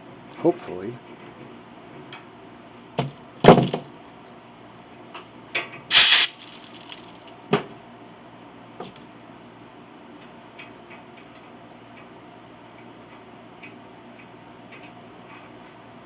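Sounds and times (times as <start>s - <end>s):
metal parts clattering: 5.9s - 7.1s.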